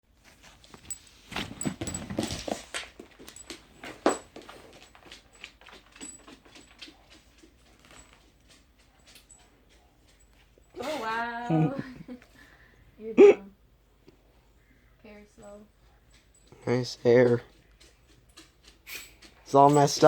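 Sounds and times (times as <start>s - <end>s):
dog toy clicks and rattles: 2.0s - 10.5s, 16.1s - 20.0s.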